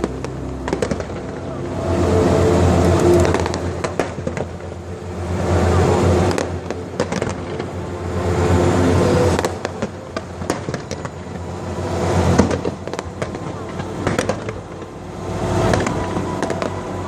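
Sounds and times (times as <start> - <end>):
fireworks rumbling bursts: 0.0 - 17.0
fireworks cracks and pops: 9.4 - 11.2.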